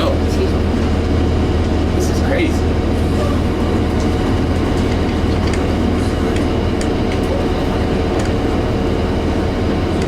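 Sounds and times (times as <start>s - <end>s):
bus diesel engine running: 0.0s - 10.0s
road noise: 0.0s - 10.0s.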